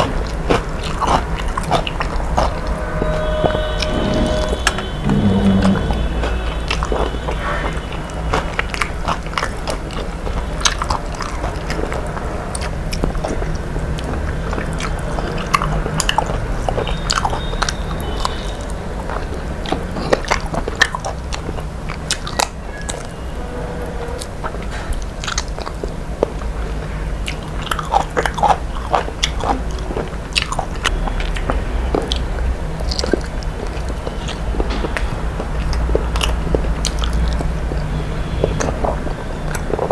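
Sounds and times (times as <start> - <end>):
person chewing crunchy food: 0.0 - 2.7, 6.2 - 18.4, 27.2 - 32.2, 32.8 - 39.9.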